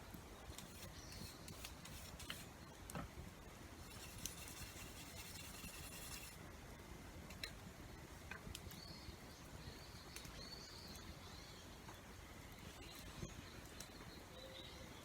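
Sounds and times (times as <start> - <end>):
faint bird chirps: 8.7 - 15.0.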